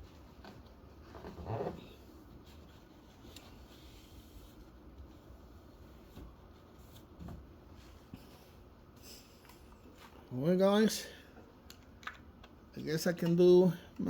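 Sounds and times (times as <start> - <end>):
faint rubbing and handling: 0.0 - 10.5.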